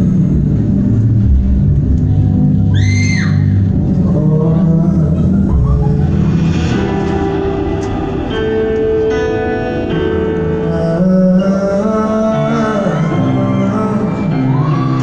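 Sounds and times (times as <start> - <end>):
live pop ballad: 0.0 - 15.0
person singing: 3.9 - 15.0.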